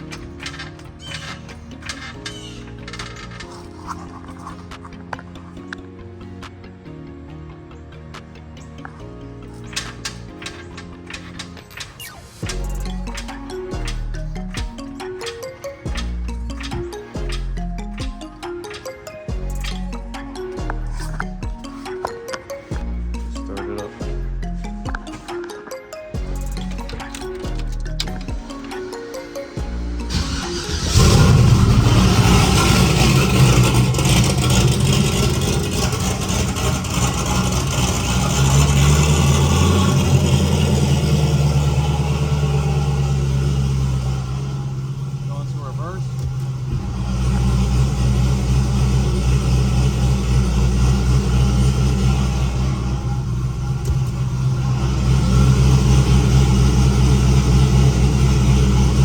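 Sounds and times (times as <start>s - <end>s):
turbocharged car engine running: 29.6s - 59.0s.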